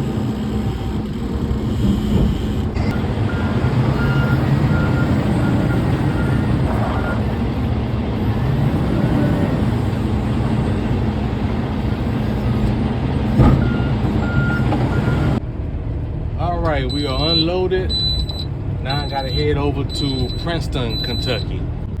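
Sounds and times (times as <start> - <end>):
heavy diesel machinery running: 0.0 - 22.0
reversing alarm beeping: 1.8 - 7.2, 9.2 - 15.4, 16.8 - 21.6
sharp clunk: 13.4 - 13.8.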